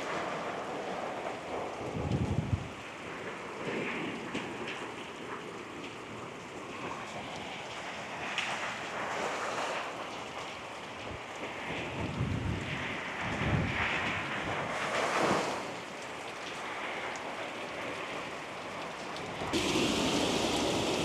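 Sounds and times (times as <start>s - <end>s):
raindrop impacts: 18.8s - 21.0s
heavy rain hissing: 19.2s - 21.0s.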